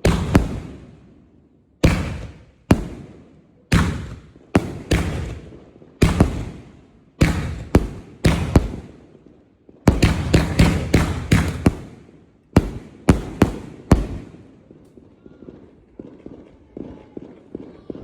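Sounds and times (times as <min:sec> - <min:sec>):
firework booms with echo: 0:00.0 - 0:01.2, 0:01.8 - 0:18.0.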